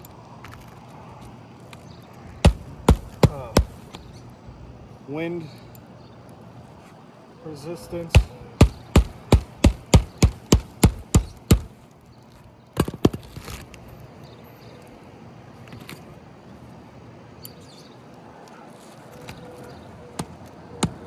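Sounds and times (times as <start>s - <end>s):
hammer driving nails: 2.4s - 4.1s, 8.2s - 11.8s, 20.2s - 21.0s.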